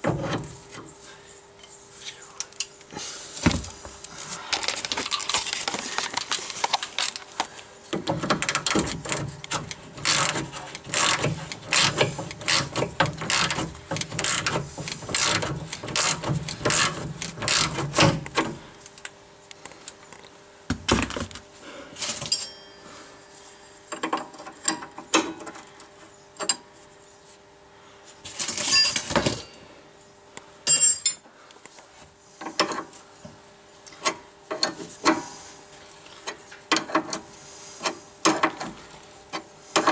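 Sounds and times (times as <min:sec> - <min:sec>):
ratchet clicking: 0:08.4 - 0:17.9.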